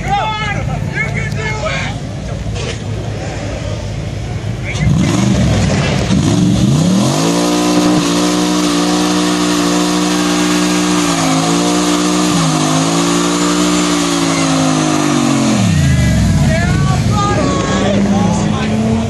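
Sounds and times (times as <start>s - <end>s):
car engine revving: 4.4s - 19.0s.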